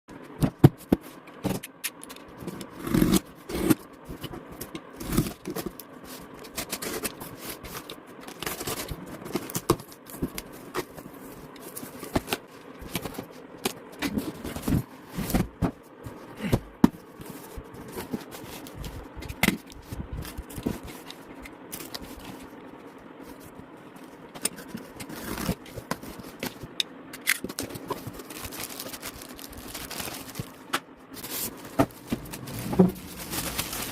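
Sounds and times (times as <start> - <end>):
cardboard packaging handled: 2.4 - 22.5, 27.4 - 33.9.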